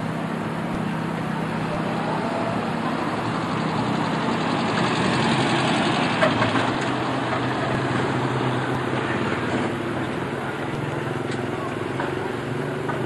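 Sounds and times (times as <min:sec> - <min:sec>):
car engine running: 0:00.0 - 0:13.0
street traffic noise: 0:00.0 - 0:13.0.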